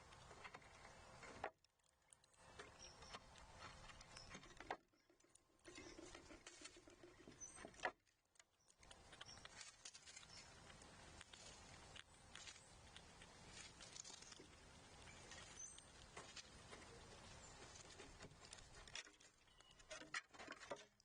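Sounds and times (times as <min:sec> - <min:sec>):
animals scratching and tapping: 0:00.0 - 0:21.0
high bird chirps: 0:15.0 - 0:16.0, 0:19.4 - 0:19.9.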